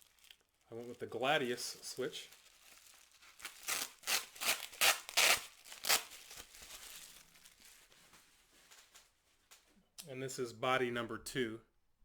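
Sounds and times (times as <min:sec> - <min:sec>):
packaging crinkling and tearing: 0:00.0 - 0:09.6.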